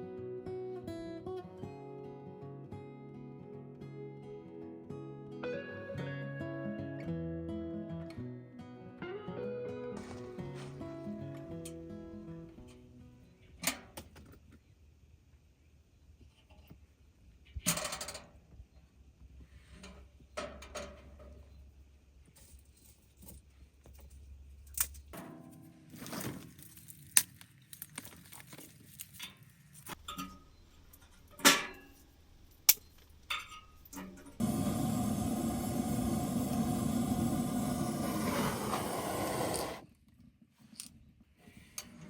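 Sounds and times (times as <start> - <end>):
rustle or scrape: 25.5 - 30.0, 37.9 - 39.8
camping gear clicks and clinks: 25.8 - 34.4.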